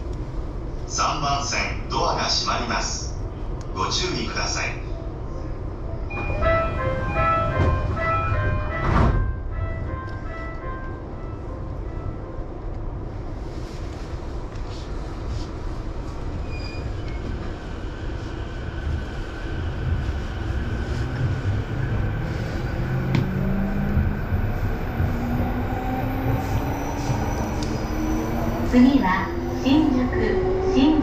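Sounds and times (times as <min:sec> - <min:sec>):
train wheels rumbling: 0:06.1 - 0:12.2, 0:12.9 - 0:31.0.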